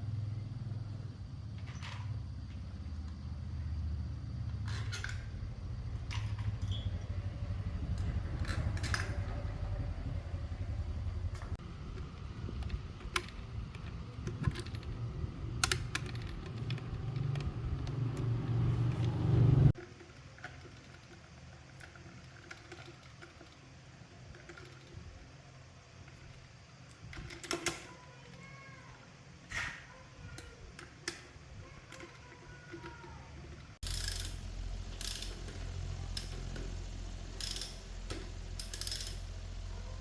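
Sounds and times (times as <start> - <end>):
motor-driven machine rumbling: 0.0 - 27.3, 31.9 - 40.0
small handling clicks: 7.9 - 9.5, 11.3 - 19.0, 19.8 - 40.0.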